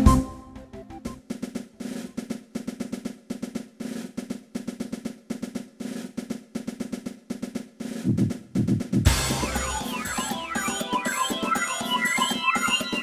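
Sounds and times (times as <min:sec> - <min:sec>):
fast snare drum rhythm with rolls: 0:01.1 - 0:13.0
heavy low drum hits: 0:08.1 - 0:10.4.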